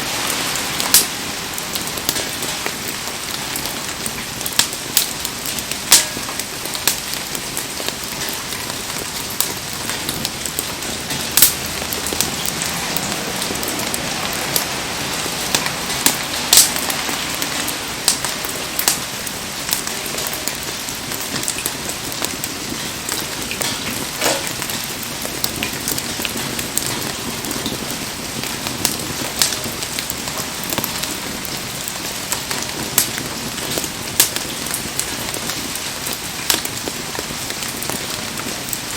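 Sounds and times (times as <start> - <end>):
heavy rain falling: 0.0 - 38.9
sharp pops and ticks: 4.4 - 13.6, 36.5 - 36.9.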